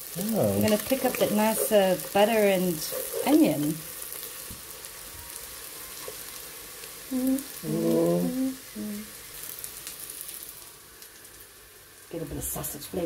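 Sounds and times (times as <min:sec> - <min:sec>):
food sizzling in butter: 0:00.0 - 0:13.0
person humming: 0:00.2 - 0:00.7, 0:07.1 - 0:09.2.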